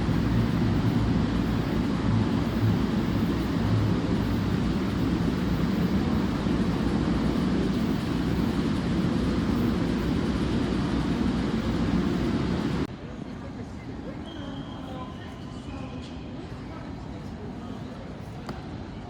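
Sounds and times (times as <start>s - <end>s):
train rumbling: 0.0s - 12.9s.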